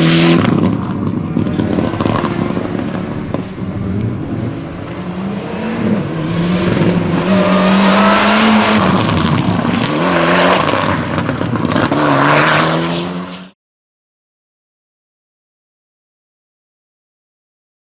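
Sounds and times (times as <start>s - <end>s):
rally car engine revving: 0.0s - 13.6s.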